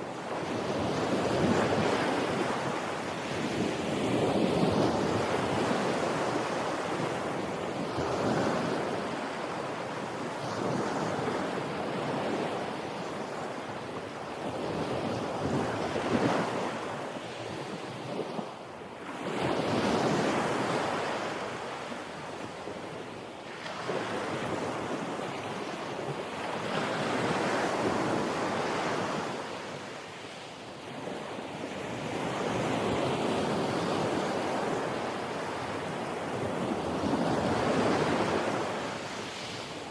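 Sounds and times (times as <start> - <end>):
wind on microphone: 0.0 - 18.6.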